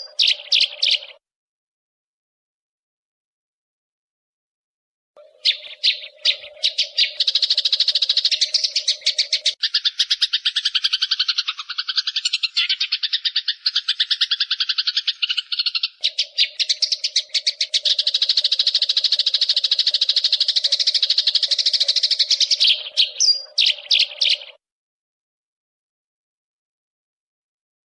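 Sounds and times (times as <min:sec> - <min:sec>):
sparrows chattering: 0:00.0 - 0:01.2, 0:05.2 - 0:24.6.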